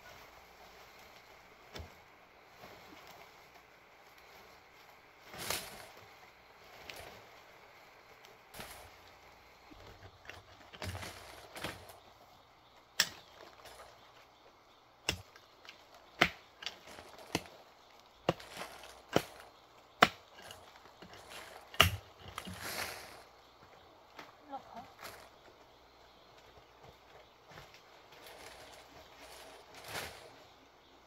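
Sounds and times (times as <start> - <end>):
soft rustling: 0.0 - 31.0
sharp chopping strikes: 21.7 - 22.1.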